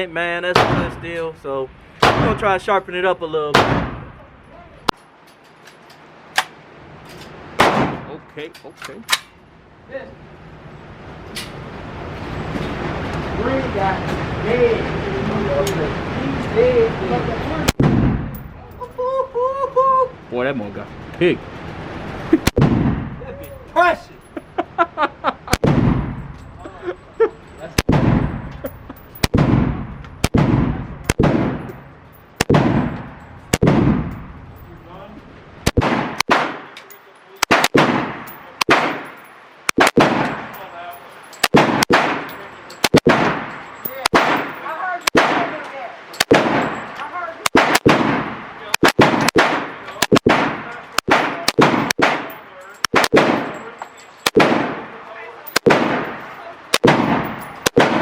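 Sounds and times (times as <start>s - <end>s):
gunshots echoing: 0.5s - 1.2s, 2.0s - 2.6s, 3.5s - 4.3s, 7.6s - 8.2s, 17.7s - 18.6s, 22.4s - 23.2s, 25.5s - 26.4s, 27.8s - 34.6s, 35.6s - 36.8s, 37.4s - 40.7s, 41.4s - 45.6s, 46.2s - 58.0s.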